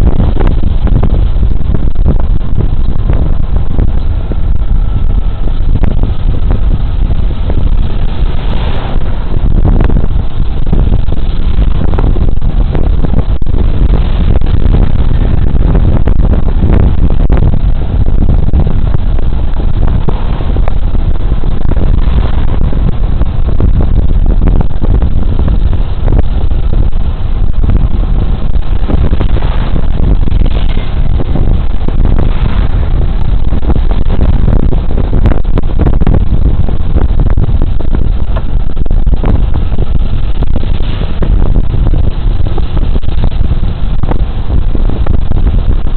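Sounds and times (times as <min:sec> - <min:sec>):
scooter engine drone: 0:00.0 - 0:45.9
wind and road noise: 0:00.0 - 0:45.9.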